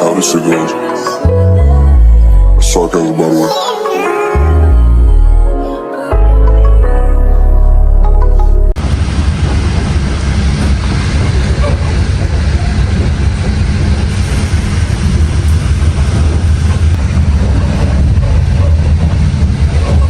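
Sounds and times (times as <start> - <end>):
train rumbling: 8.2 - 20.0.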